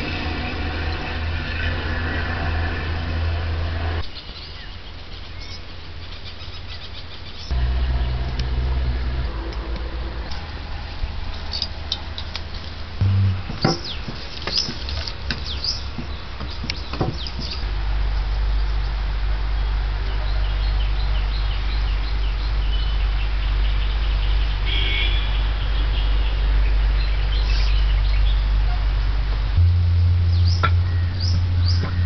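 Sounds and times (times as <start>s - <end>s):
steady low rumble: 0.0s - 4.1s, 7.5s - 12.2s, 12.8s - 14.2s, 29.1s - 32.0s
sharp knocks: 13.0s - 17.6s, 29.6s - 32.0s
birds chirping: 13.0s - 17.7s, 29.6s - 32.0s.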